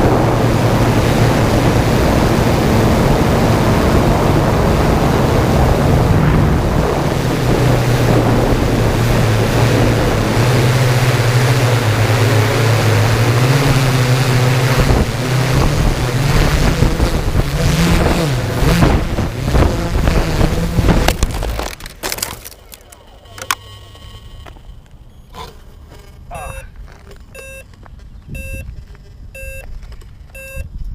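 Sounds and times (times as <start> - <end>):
wind noise on microphone: 0.0 - 21.8, 26.6 - 30.9
drone motors humming: 0.0 - 30.6
clicks: 21.0 - 30.4.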